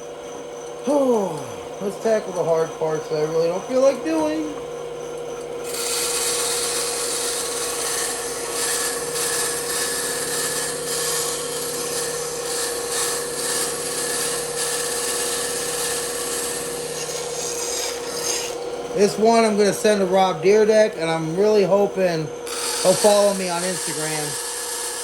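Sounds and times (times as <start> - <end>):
bandsaw humming: 0.6 - 25.0
saw blade rasping through wood: 5.6 - 21.9, 22.5 - 25.0.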